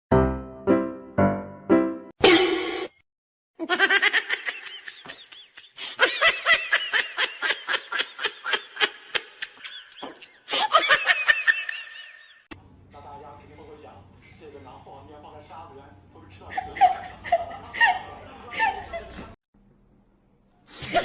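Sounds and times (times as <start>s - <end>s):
person laughing hard: 3.6s - 12.4s, 16.5s - 19.3s.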